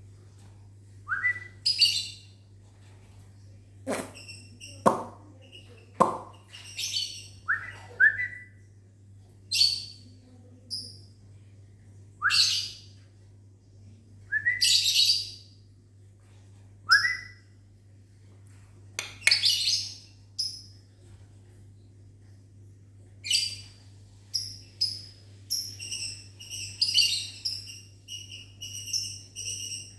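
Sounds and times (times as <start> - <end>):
lovebirds chirping and squawking: 19.2 - 20.1, 24.3 - 29.9.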